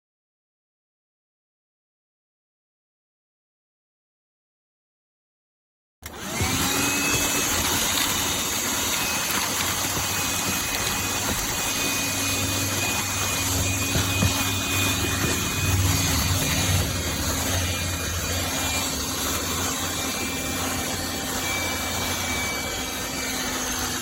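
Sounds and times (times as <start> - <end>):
handheld vacuum motor whine: 6.0 - 24.0
vacuum suction noise: 6.1 - 22.8.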